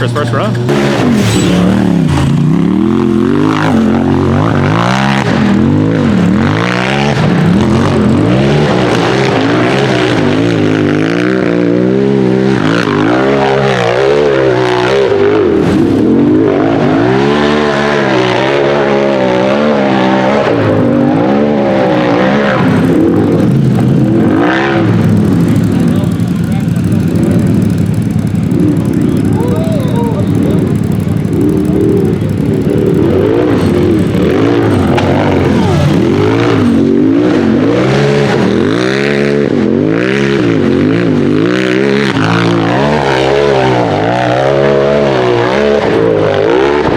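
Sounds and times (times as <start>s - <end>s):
race engine revving: 0.0s - 46.9s.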